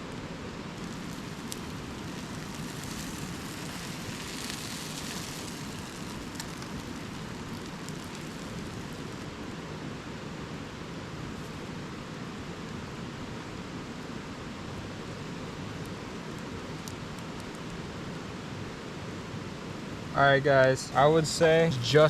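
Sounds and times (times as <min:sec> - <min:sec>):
campfire crackles: 0:00.0 - 0:22.0
sandwich sizzling in butter: 0:00.4 - 0:09.5, 0:21.2 - 0:22.0.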